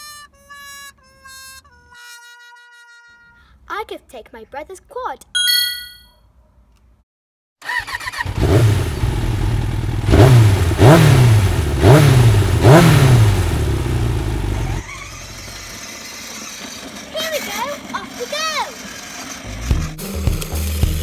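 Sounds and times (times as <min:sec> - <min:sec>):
motorbike engine revving: 0:07.7 - 0:21.0.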